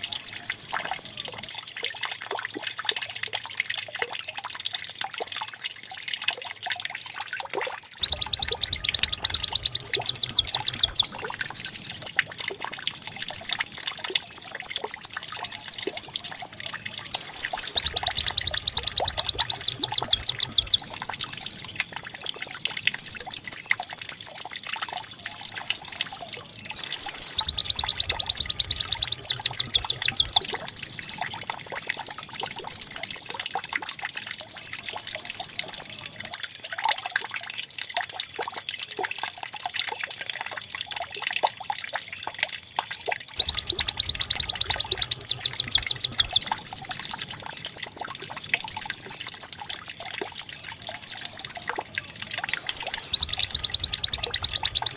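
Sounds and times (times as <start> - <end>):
recorded white-eye birdsong: 0.0 - 1.3, 8.0 - 36.0, 43.4 - 54.9.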